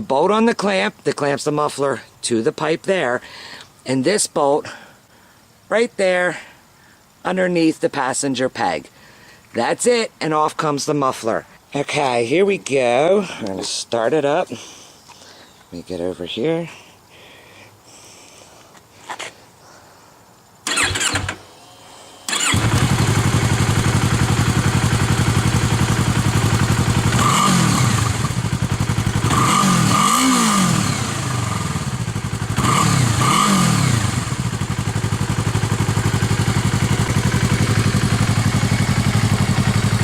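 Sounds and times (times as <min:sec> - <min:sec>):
motorcycle engine cranking: 0:20.7 - 0:21.4, 0:22.3 - 0:40.0
motorcycle engine idling and revving: 0:22.3 - 0:40.0.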